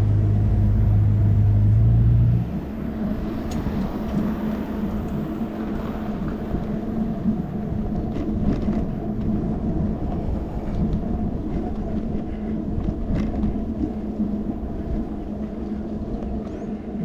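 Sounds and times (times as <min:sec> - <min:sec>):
low hum: 0:00.0 - 0:17.0
wind and tyre rumble: 0:00.0 - 0:17.0.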